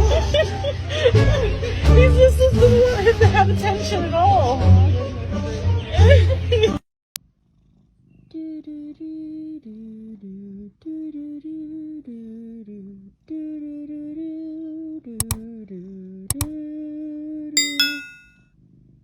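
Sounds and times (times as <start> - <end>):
sharp clicks: 15.2 - 15.4, 16.3 - 16.5.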